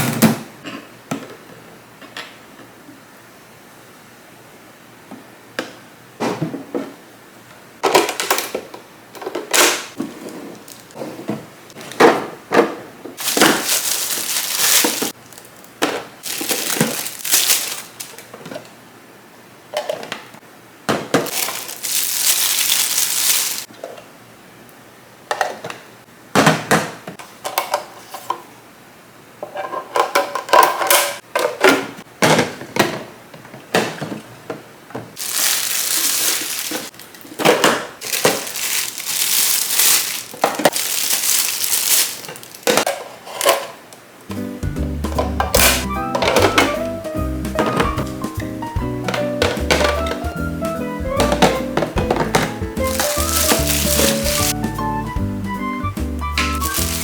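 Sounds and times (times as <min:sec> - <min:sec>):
wrapping crinkling: 0:10.5 - 0:11.0, 0:13.2 - 0:18.3, 0:21.3 - 0:23.7, 0:35.2 - 0:43.4, 0:52.1 - 0:54.6, 0:56.4 - 0:57.0.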